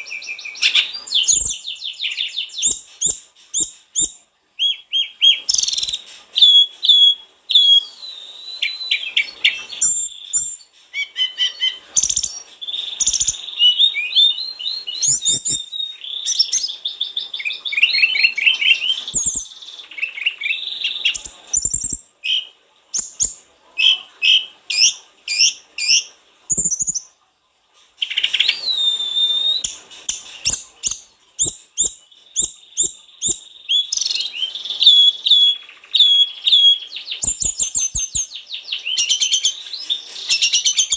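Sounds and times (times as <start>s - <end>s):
bird whistling and trilling: 0.0s - 27.1s, 28.0s - 40.9s.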